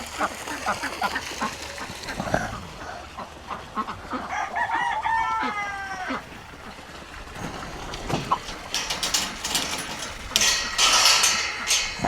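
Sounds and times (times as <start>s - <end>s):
rooster crowing: 4.3s - 6.3s.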